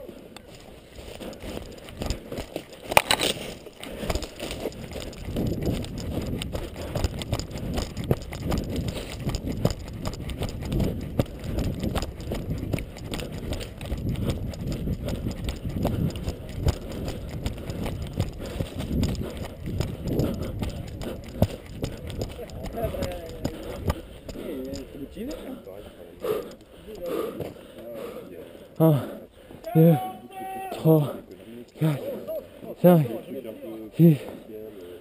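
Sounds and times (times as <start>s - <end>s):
footsteps: 0.0s - 28.3s
rattling gear: 0.5s - 26.7s.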